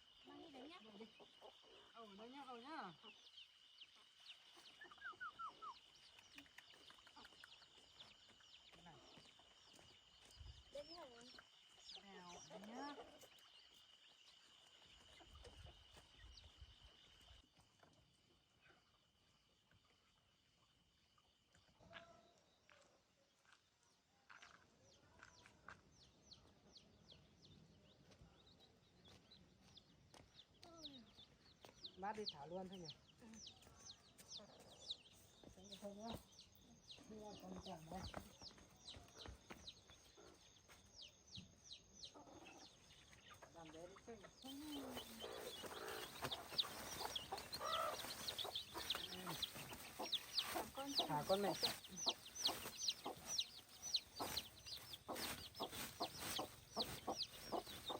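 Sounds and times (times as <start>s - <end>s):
chicks peeping: 0.1s - 8.1s, 30.4s - 57.9s
chicken clucking: 42.0s - 57.9s.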